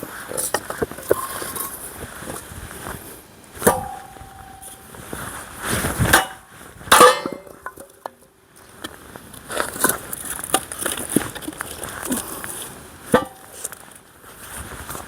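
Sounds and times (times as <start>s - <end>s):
axe striking metal: 3.6s - 4.7s, 6.1s - 7.6s.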